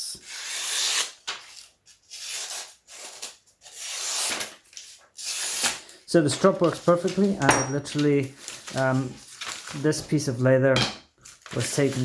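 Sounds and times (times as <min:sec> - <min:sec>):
knife scraping strokes: 0:00.2 - 0:01.2.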